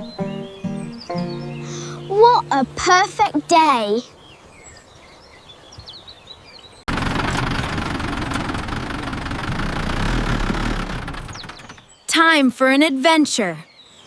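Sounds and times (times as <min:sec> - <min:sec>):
faint bird chirps: 0:00.0 - 0:02.6
tractor engine running: 0:06.9 - 0:11.9.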